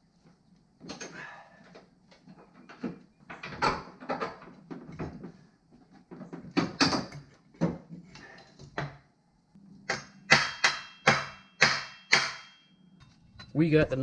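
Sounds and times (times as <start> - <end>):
metal knocks and clunks: 2.4 - 9.0
sharp metal strikes: 9.9 - 12.8.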